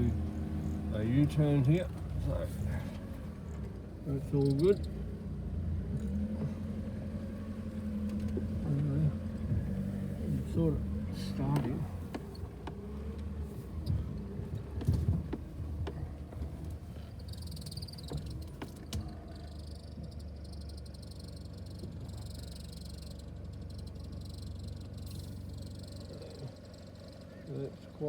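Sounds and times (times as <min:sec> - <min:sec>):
vehicle engine at low revs: 0:00.0 - 0:28.0
knocks and rattles from bumps: 0:07.9 - 0:20.2.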